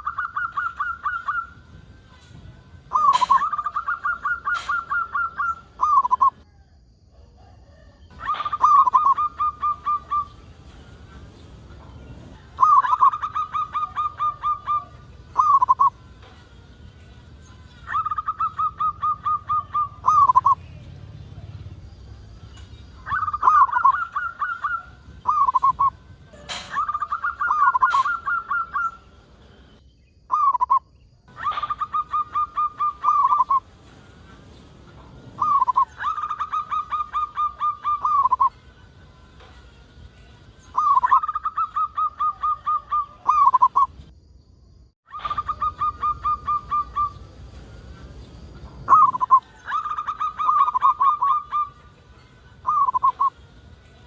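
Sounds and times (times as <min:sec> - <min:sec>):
dove cooing: 0:00.0 - 0:01.7, 0:02.9 - 0:06.4, 0:07.4 - 0:10.5, 0:12.2 - 0:16.0, 0:17.7 - 0:29.1, 0:30.3 - 0:33.7, 0:35.4 - 0:38.6, 0:40.8 - 0:43.9, 0:45.1 - 0:47.6, 0:48.8 - 0:51.8, 0:52.6 - 0:53.3.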